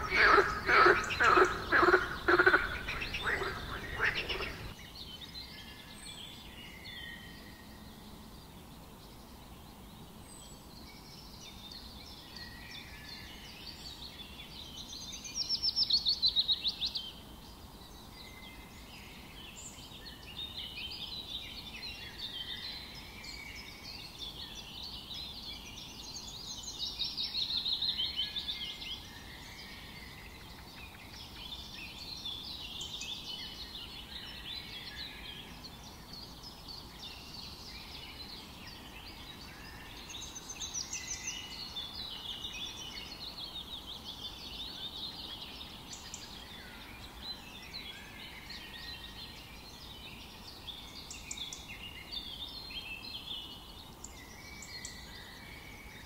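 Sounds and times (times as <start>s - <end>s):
fast pulsing animal call: 0.0s - 4.7s
low steady background: 0.0s - 4.8s
wild birds chirping: 0.0s - 7.4s, 17.5s - 56.0s.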